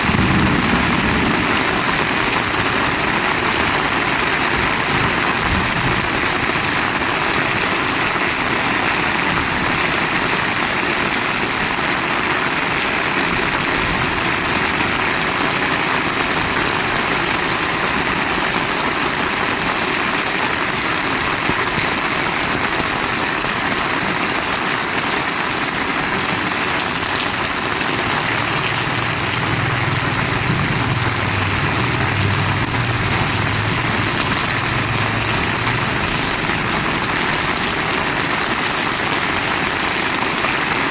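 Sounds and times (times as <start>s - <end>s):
low engine-like drone: 0.0s - 4.1s, 27.8s - 37.5s
heavy rain falling: 0.0s - 40.9s.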